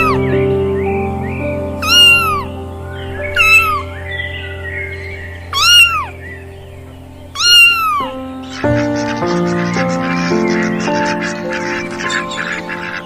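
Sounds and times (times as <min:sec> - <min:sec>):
background music: 0:00.0 - 0:13.0
cat meowing: 0:01.8 - 0:02.4, 0:05.6 - 0:06.1, 0:07.4 - 0:09.2.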